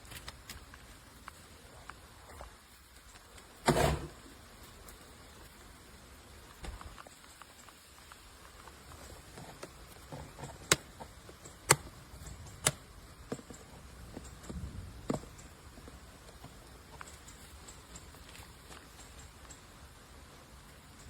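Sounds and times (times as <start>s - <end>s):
sharp clicks: 10.4s - 12.9s.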